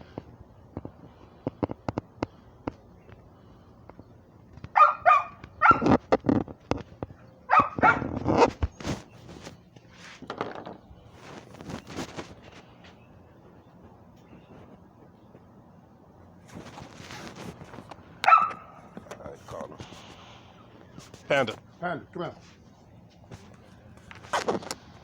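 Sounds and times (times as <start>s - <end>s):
dog barking: 4.8s - 6.0s, 7.5s - 8.1s, 18.2s - 18.8s.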